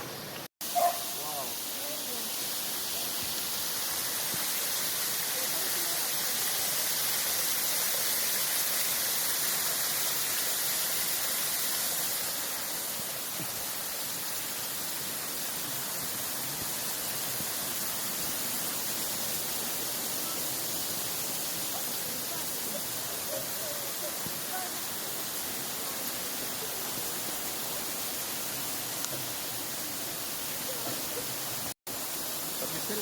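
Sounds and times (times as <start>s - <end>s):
flowing water rushing: 0.0s - 33.0s.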